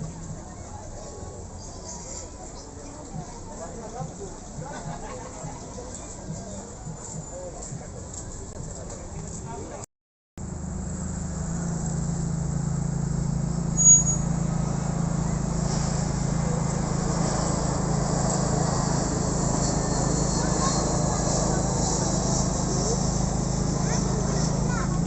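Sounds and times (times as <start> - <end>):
aircraft engine rumble: 14.5 - 25.0.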